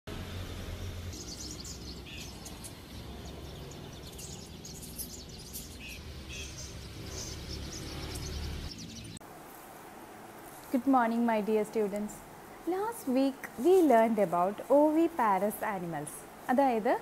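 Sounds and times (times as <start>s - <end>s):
low outdoor rumble: 0.1s - 17.0s
birds chirping: 1.0s - 9.2s.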